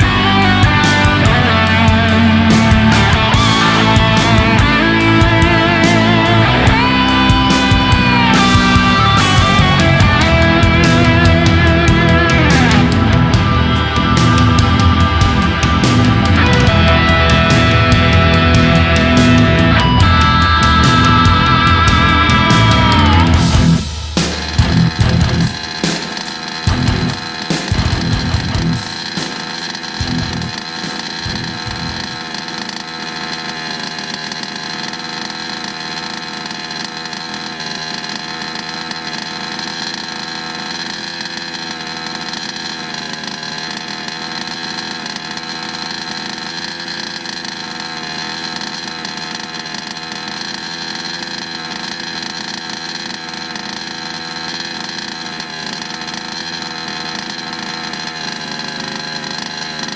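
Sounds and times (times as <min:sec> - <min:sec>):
low thumps: 0:00.0 - 0:28.8, 0:30.0 - 0:30.6, 0:31.2 - 0:32.2
two-stroke engine idling: 0:00.0 - 0:59.9.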